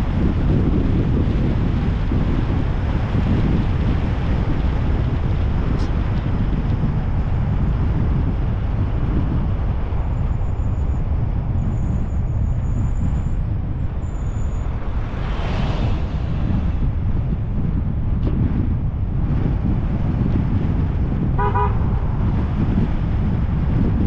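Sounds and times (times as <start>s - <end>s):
car driving rumble: 0.0s - 24.0s
louder whoosh: 14.2s - 18.2s.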